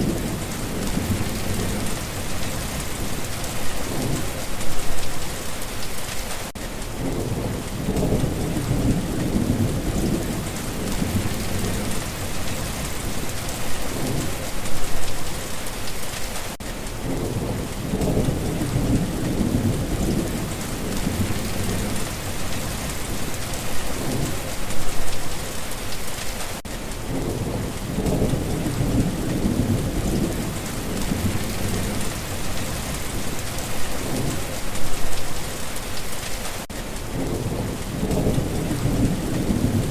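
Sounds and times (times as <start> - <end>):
rolling thunder: 0.0 - 5.0, 7.0 - 15.1, 17.0 - 25.0, 27.0 - 35.0, 37.1 - 39.9
steady rain: 0.0 - 39.9.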